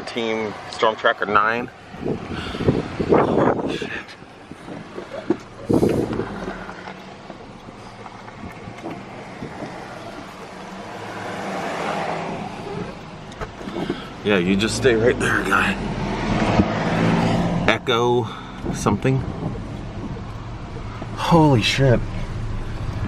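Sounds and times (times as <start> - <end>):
road noise: 0.0 - 23.0
vehicle engine hum: 0.0 - 23.0
loud rush of air: 1.9 - 5.0, 5.6 - 6.8.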